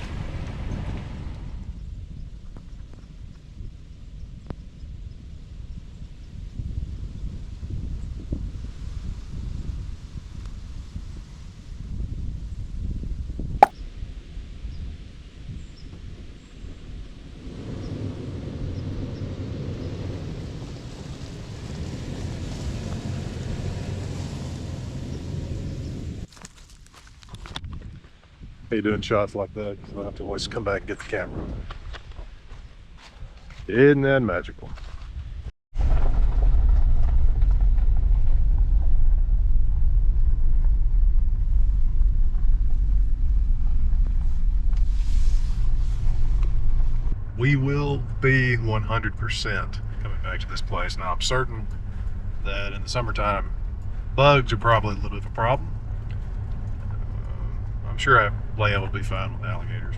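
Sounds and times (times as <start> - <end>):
car engine and road rumble: 21.0 - 26.3, 36.6 - 59.9.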